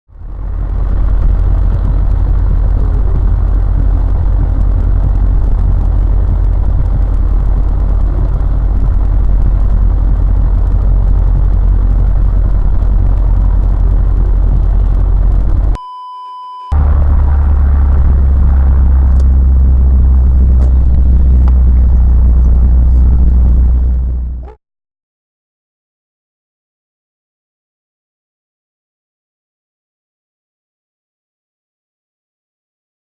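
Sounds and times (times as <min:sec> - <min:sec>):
car engine and road noise: 0:00.1 - 0:24.6.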